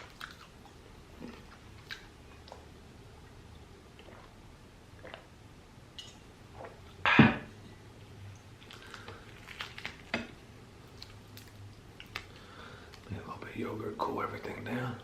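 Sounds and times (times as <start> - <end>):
wet mouth sounds: 4.0 - 4.4, 5.0 - 5.3.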